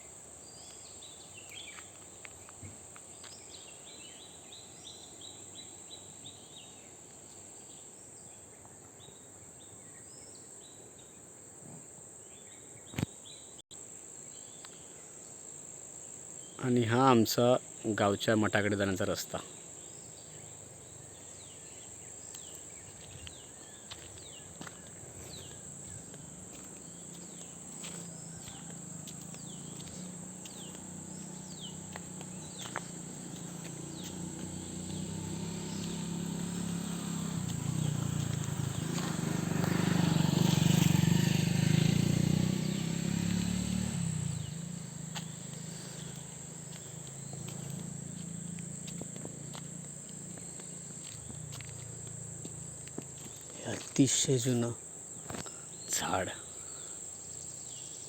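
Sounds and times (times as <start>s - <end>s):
insects droning: 0.0s - 58.0s
bird chirps: 18.3s - 39.3s, 41.8s - 48.2s.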